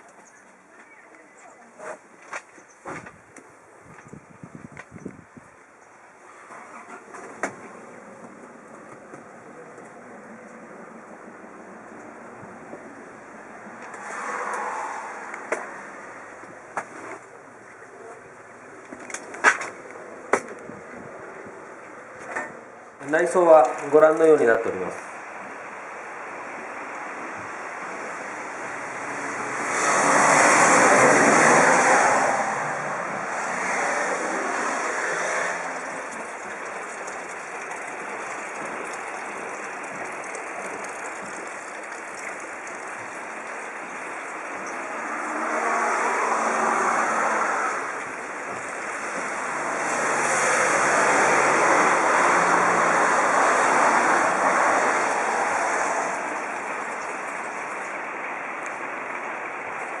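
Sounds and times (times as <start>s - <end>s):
vehicles passing: 0.0s - 60.0s.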